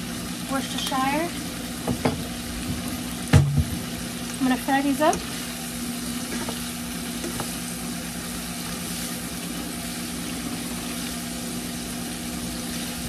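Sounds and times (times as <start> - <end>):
green beans sizzling in a pan: 0.0 - 13.0.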